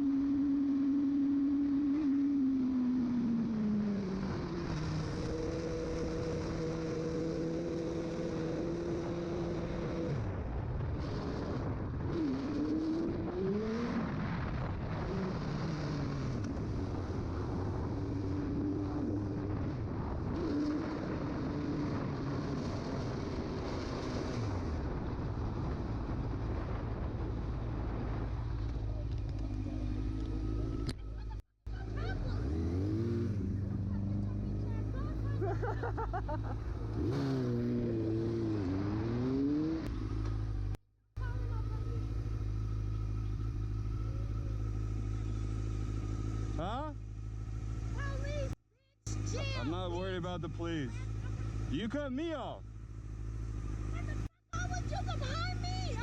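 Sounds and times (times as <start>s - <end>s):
low rumble and rushing noise: 0.0s - 35.3s
motorcycle engine running: 0.0s - 56.0s.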